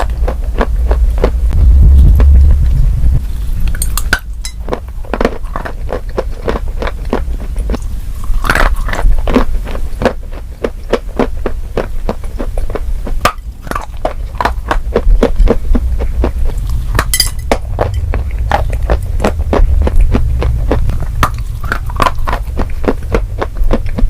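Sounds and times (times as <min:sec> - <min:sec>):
crunchy chewing and biting: 0:00.0 - 0:02.6, 0:03.2 - 0:24.0
steady low hum: 0:00.0 - 0:24.0.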